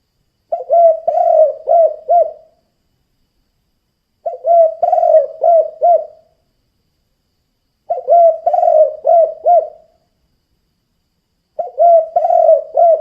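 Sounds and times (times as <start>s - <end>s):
dove cooing: 0.5s - 2.6s, 4.2s - 6.3s, 7.9s - 9.9s, 11.6s - 13.0s.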